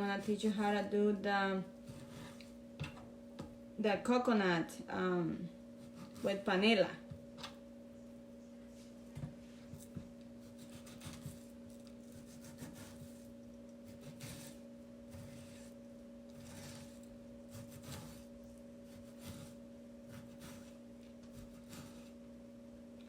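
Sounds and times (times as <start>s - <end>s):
steady electrical hum: 0.0s - 23.0s
hands and utensils scraping: 1.8s - 2.6s, 13.9s - 22.2s.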